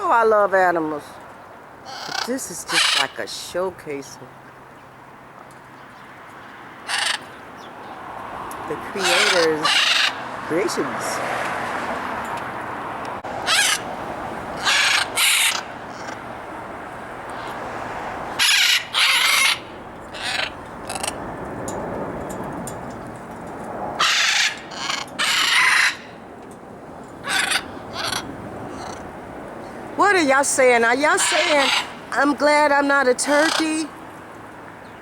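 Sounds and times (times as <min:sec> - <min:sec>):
parrots squawking: 0:01.8 - 0:03.2, 0:06.8 - 0:07.4, 0:08.8 - 0:10.8, 0:13.4 - 0:13.9, 0:14.5 - 0:16.2, 0:18.3 - 0:21.3, 0:24.0 - 0:26.2, 0:27.2 - 0:29.1, 0:30.0 - 0:34.0.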